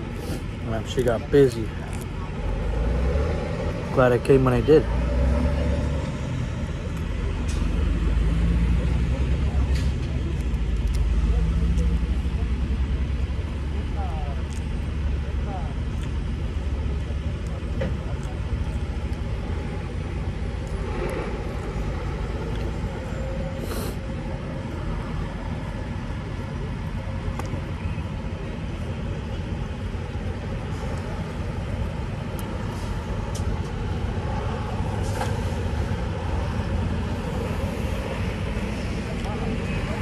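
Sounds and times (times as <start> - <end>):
diesel truck engine rumbling: 0.0 - 40.0
brief high hiss: 23.6 - 24.0.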